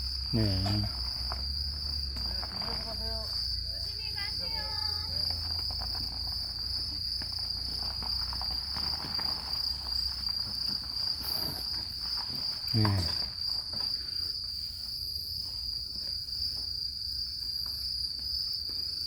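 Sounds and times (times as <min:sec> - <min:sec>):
insects chirping: 0:00.0 - 0:19.0
faint person's voice: 0:12.7 - 0:13.2.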